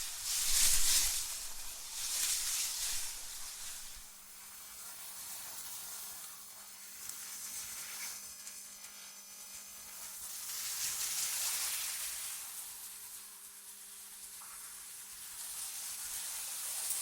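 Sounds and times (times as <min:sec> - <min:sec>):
wind noise hiss: 0:00.0 - 0:04.6.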